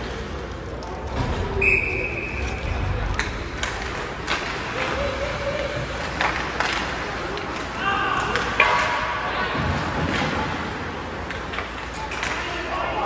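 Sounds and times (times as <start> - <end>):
hockey sticks and puck clacking: 0.0 - 13.0
referee whistle blowing: 1.6 - 2.5.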